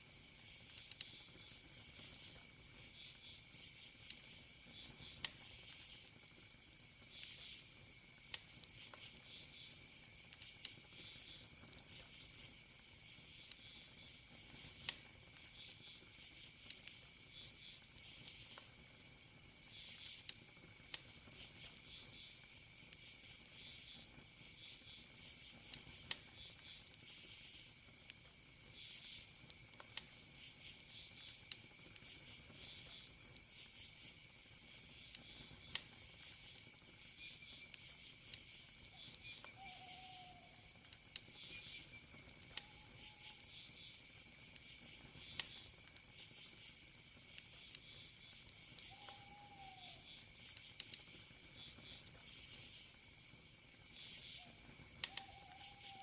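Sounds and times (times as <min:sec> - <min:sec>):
wood fire crackling: 0:00.0 - 0:56.0
cricket trill: 0:00.1 - 0:56.0
pulsing insect chirps: 0:34.8 - 0:53.2, 0:53.8 - 0:56.0.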